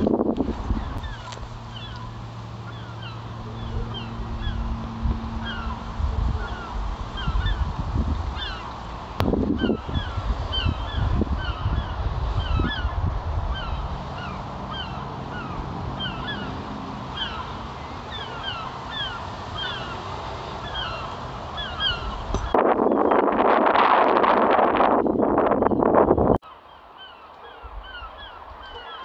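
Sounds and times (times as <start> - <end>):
small birds chirping: 0.6 - 8.8, 9.5 - 23.4, 25.5 - 29.0.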